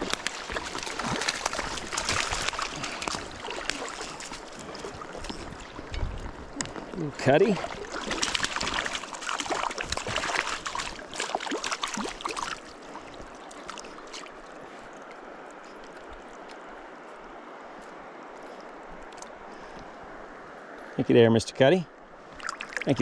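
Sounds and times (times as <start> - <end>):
water splashing: 0.0 - 16.6, 22.2 - 23.0
shallow stream rushing: 0.0 - 23.0.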